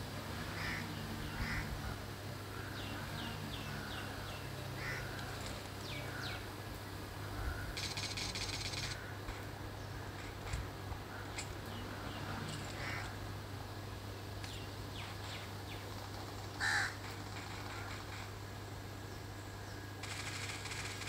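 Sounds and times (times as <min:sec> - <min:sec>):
steady low hum: 0:00.0 - 0:21.0
dry buzzing bird trill: 0:00.3 - 0:06.5, 0:07.2 - 0:09.1.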